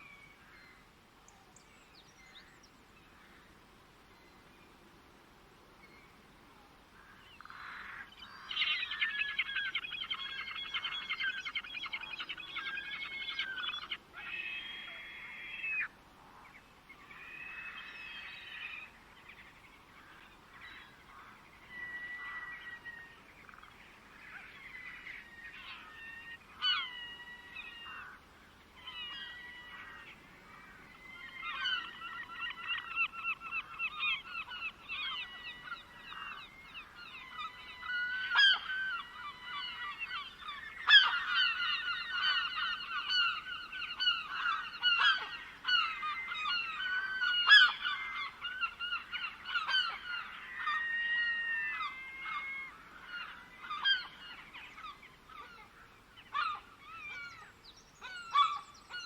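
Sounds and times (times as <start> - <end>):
birds singing and calling: 28.8 - 59.0.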